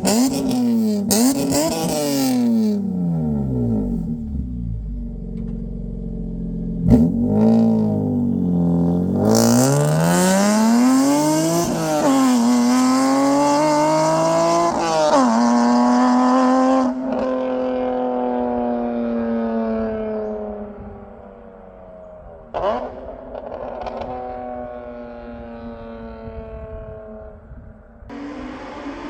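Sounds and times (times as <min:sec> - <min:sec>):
exhaust crack: 0:00.0 - 0:12.6
car engine accelerating: 0:00.0 - 0:27.3, 0:28.1 - 0:29.0.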